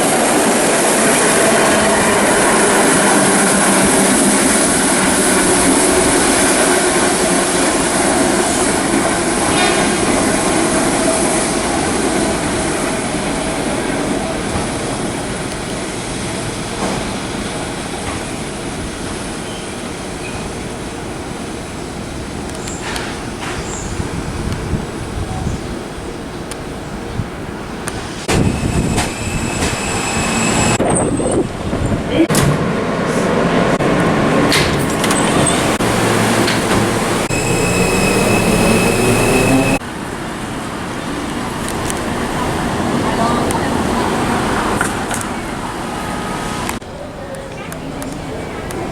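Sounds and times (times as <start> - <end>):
subway train wheel and track noise: 0.0 - 48.9
high steady squeal: 28.2 - 31.3, 37.1 - 39.8
rising motor whine: 35.8 - 39.8.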